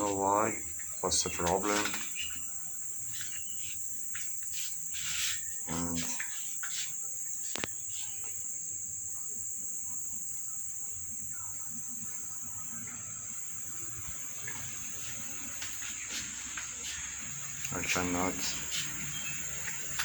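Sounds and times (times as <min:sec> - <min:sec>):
high-pitched whine: 0:04.6 - 0:06.6.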